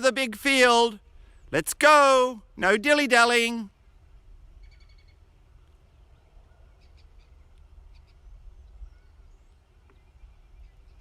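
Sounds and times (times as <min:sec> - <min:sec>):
faint birdsong: 0:03.8 - 0:11.0.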